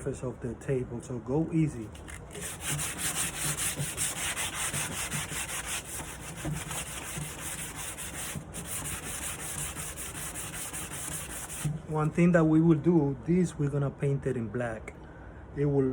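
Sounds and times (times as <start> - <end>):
wood being hand sanded: 2.0 - 12.1.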